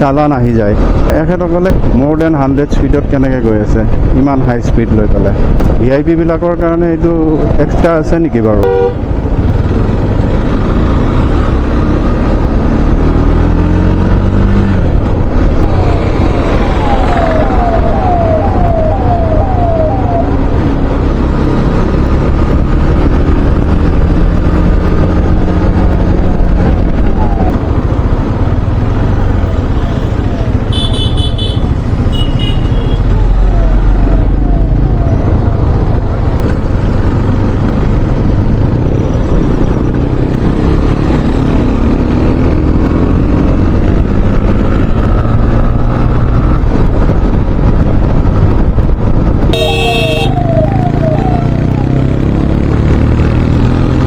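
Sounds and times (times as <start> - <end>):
motorcycle engine on the road: 0.0 - 54.0
wind: 0.0 - 54.0
siren yelping: 15.6 - 21.0, 26.4 - 27.8, 32.4 - 36.2, 49.6 - 52.2
short horn toots: 30.7 - 32.8, 49.5 - 50.3.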